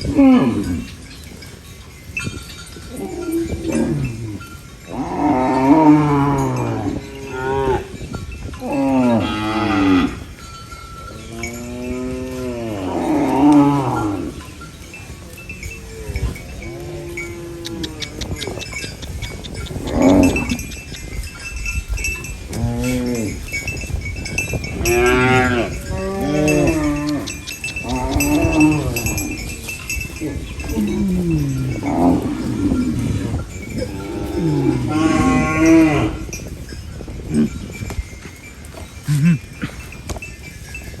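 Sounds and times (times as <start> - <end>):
cowbells clinking: 0.0 - 41.0
cow mooing: 3.0 - 7.9, 8.6 - 10.3, 11.1 - 14.4, 16.0 - 18.7, 19.5 - 20.9, 22.4 - 23.5, 24.7 - 36.3.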